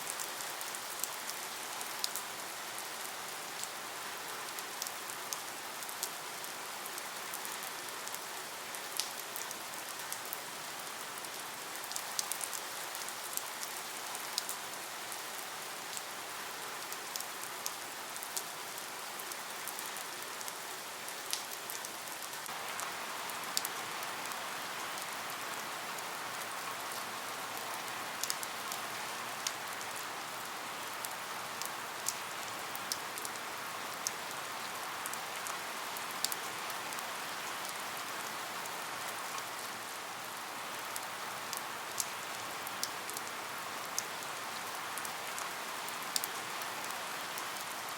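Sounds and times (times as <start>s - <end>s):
rain hiss: 0.0s - 47.9s
sharp rain drop ticks: 28.2s - 28.5s.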